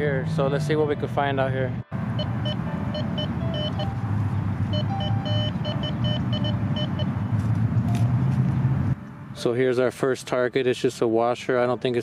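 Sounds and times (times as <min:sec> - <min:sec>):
metal detector beeps: 0:02.2 - 0:04.0, 0:04.7 - 0:07.2.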